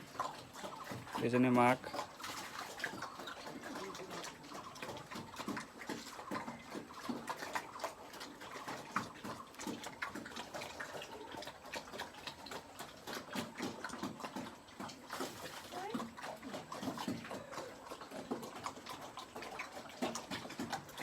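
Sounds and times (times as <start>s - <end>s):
pigs chewing and smacking: 0.0s - 21.0s.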